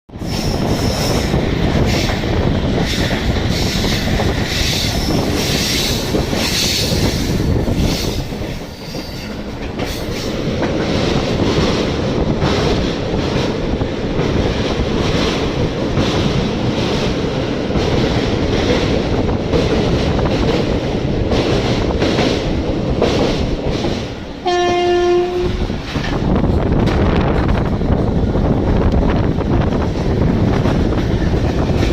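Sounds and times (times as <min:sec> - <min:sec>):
horn blast: 0:24.4 - 0:25.6.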